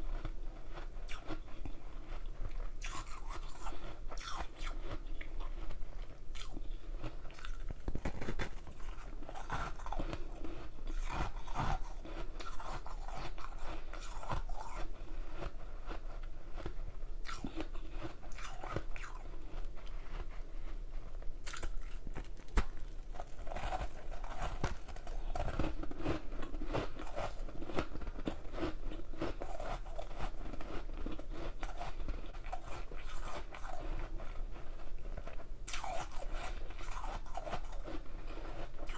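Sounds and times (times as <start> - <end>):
chewing hard ice crunching: 0.1 - 6.7, 7.3 - 15.5, 16.6 - 20.2, 35.7 - 38.9.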